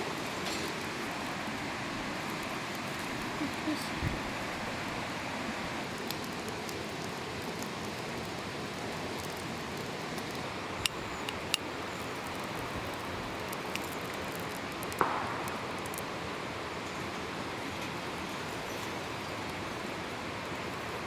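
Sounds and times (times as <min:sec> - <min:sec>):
stream rushing: 0:00.0 - 0:21.0.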